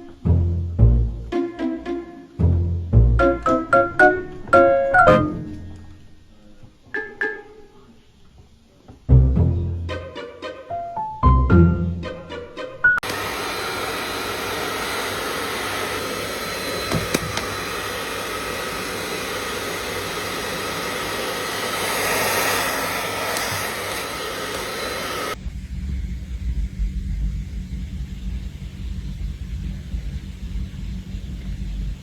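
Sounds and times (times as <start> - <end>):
plucked music notes: 0.1 - 5.9
rushing motor blowing air: 13.0 - 32.0.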